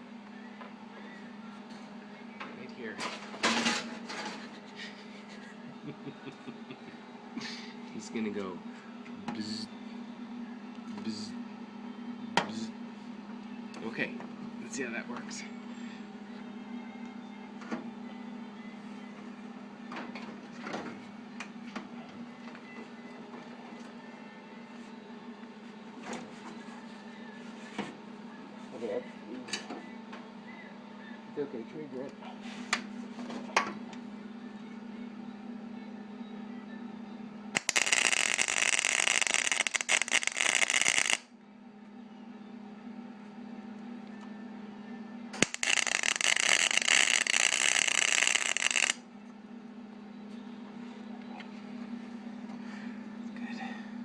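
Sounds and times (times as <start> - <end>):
steady low hum: 0.0 - 54.0
steady hum: 33.9 - 54.0
welder crackling bursts: 37.6 - 41.3, 45.4 - 49.0.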